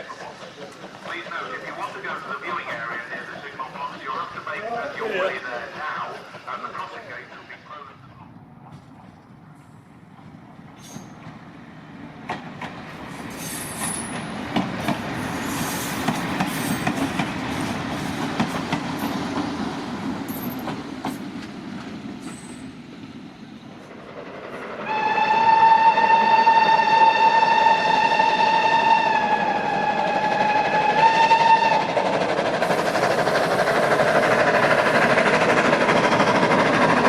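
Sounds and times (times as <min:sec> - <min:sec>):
train rolling on rails: 0:00.0 - 0:37.0
locomotive whistle: 0:24.8 - 0:32.0.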